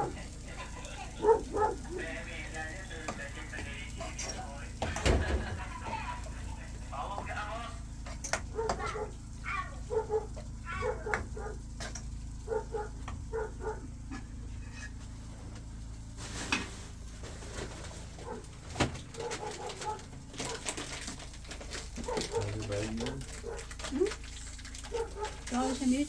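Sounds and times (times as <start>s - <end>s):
steady low hum: 0.0s - 26.0s
birds cooing: 8.4s - 11.6s, 18.2s - 20.6s, 22.0s - 24.2s.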